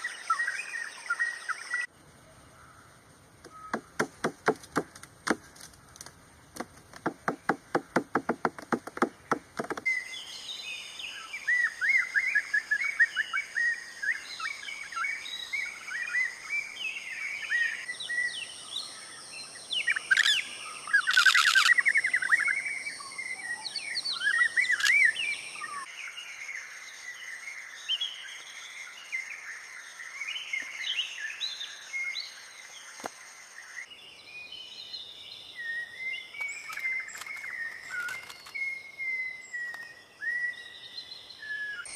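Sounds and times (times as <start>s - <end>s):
birds chirping and twittering: 0.0s - 41.9s
rapid knocking: 6.6s - 9.8s.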